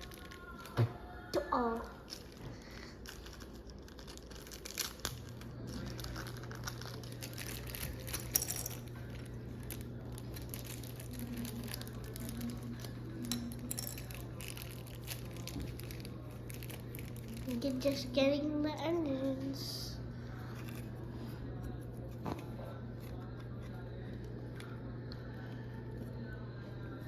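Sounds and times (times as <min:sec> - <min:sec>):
packaging crinkling: 0:00.0 - 0:18.1
steady low hum: 0:00.0 - 0:27.0.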